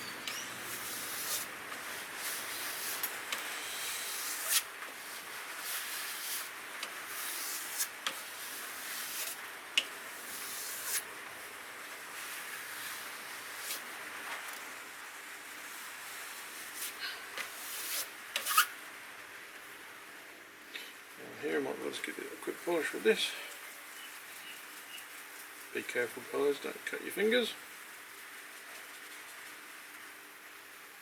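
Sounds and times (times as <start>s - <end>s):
knife rubbing on strop: 0.0s - 11.1s, 12.1s - 13.8s, 16.6s - 18.7s.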